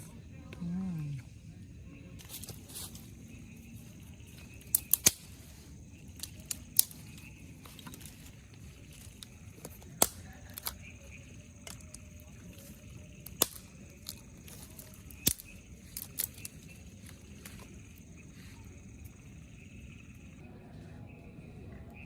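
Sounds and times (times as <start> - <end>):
steady low hiss: 0.0 - 22.0
sharp ticks: 4.4 - 5.4, 13.1 - 16.8.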